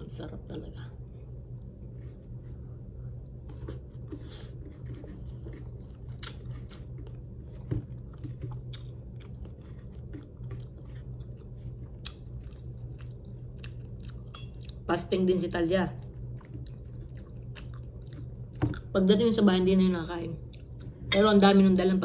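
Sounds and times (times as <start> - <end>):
low hum: 0.0 - 22.0
person chewing food: 1.5 - 14.9, 16.0 - 18.9.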